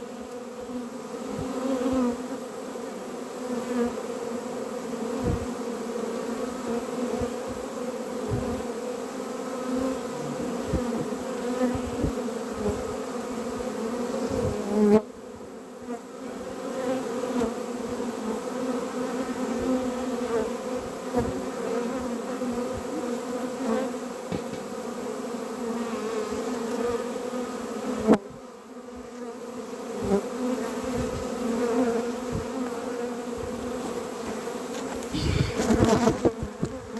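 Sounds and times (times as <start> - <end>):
honeybees buzzing: 0.0 - 36.9
sharp knocks: 24.3 - 24.7.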